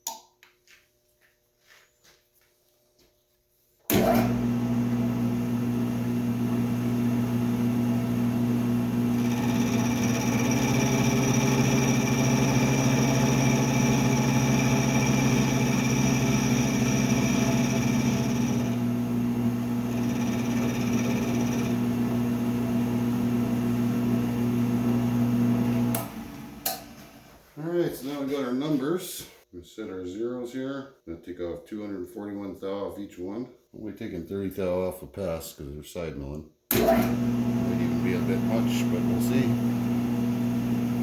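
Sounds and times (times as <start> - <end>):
cutter whining on metal: 3.9 - 24.8, 36.7 - 41.0
milling machine motor hum: 3.9 - 27.1, 36.7 - 41.0.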